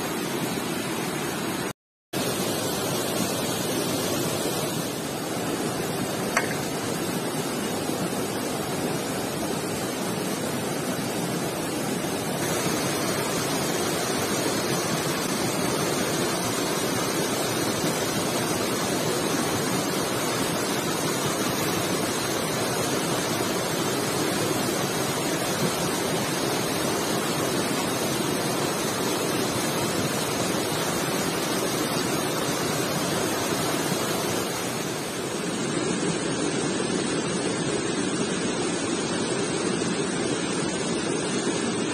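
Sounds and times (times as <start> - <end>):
stream water rushing: 0.0 - 41.9.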